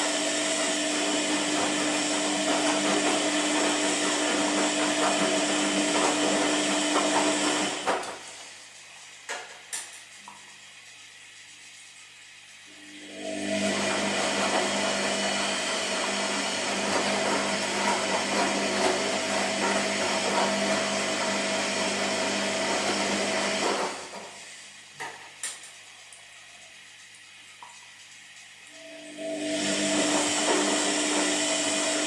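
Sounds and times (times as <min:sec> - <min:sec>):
washing machine motor whirring: 0:00.0 - 0:32.0.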